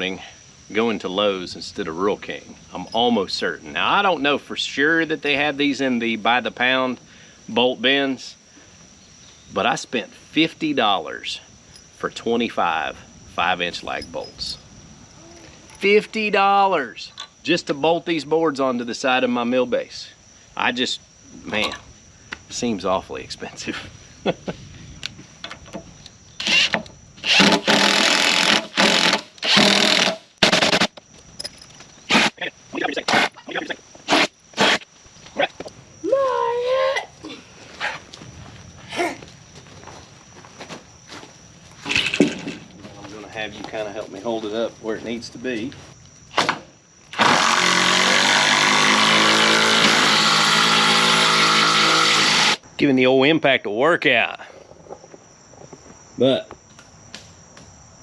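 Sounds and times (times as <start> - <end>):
impact driver driving bolt into wood: 26.4 - 30.9.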